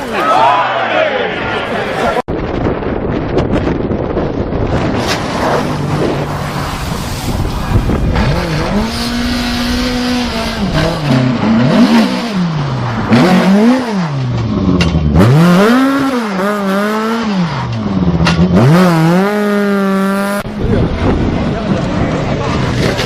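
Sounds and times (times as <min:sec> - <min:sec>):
wind and road noise: 0:00.0 - 0:23.0
car engine revving: 0:04.7 - 0:23.0.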